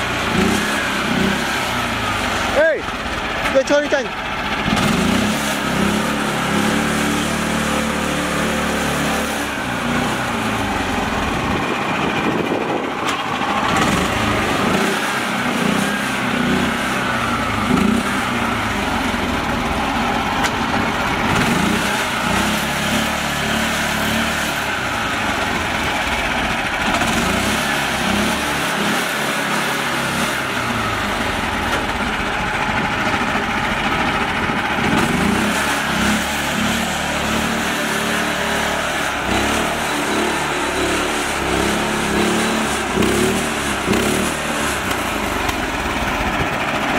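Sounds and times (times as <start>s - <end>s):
small tractor engine running: 0.0s - 46.9s.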